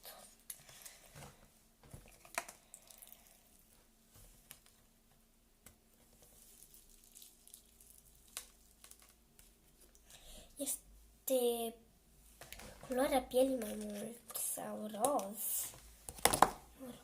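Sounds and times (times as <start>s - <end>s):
slime squishing and crackling: 6.4s - 9.3s.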